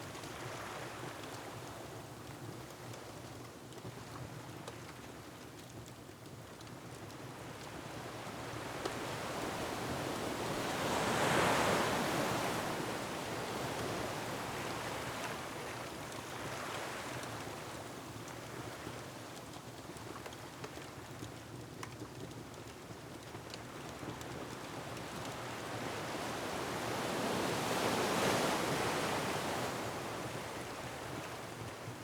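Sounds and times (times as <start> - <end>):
faint wood fire crackles: 0.0 - 32.0
ocean waves on rocky shore: 8.6 - 15.4.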